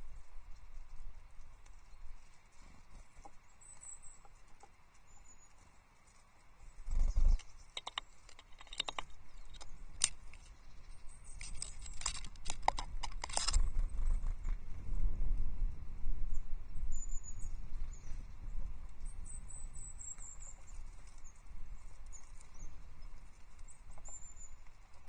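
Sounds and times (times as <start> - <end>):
thin high bird calls: 1.4 - 12.7, 16.7 - 25.0
light taps and clicks on sticks: 7.4 - 10.5.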